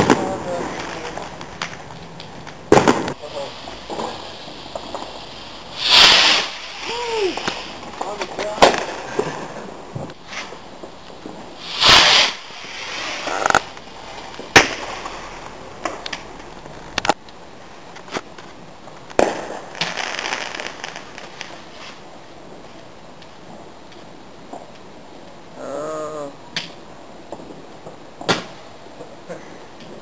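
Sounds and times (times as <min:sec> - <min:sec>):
firework bangs: 0:00.0 - 0:16.2, 0:19.1 - 0:22.6
firework crackling: 0:00.0 - 0:30.0
firework hissing burst: 0:02.7 - 0:10.6, 0:11.5 - 0:16.2, 0:19.2 - 0:22.0.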